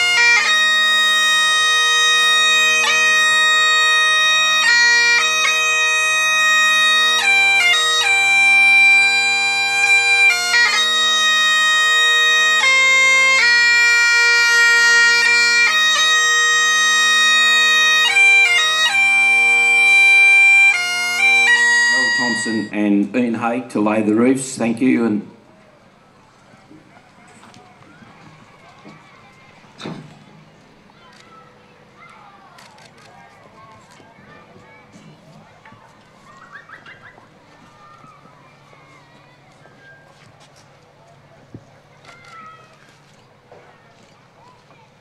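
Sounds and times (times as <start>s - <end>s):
bagpipes playing: 0.0s - 24.4s.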